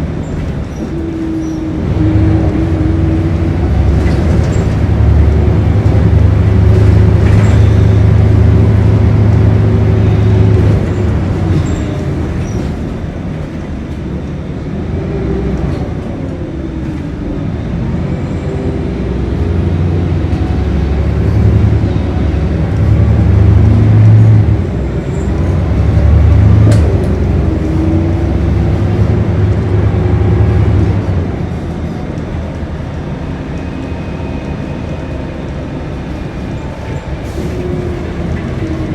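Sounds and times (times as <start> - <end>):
bus diesel engine pulling: 0.0 - 38.9.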